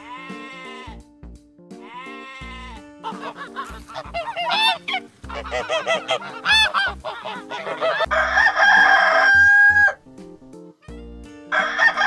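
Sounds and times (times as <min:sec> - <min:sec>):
geese honking: 0:01.8 - 0:10.0
rooster crowing: 0:07.6 - 0:10.0, 0:11.5 - 0:12.0.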